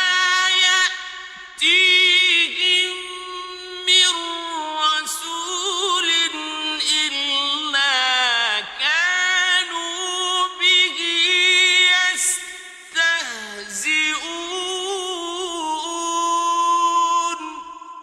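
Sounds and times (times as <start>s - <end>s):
man chanting melodically: 0.0s - 17.9s.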